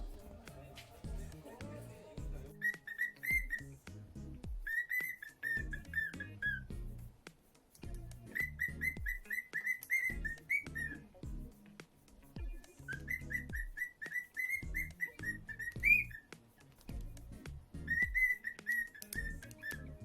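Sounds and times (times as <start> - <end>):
cockatiel whistling: 2.5 - 3.7, 4.6 - 6.7, 8.3 - 11.1, 12.6 - 16.3, 17.8 - 19.9.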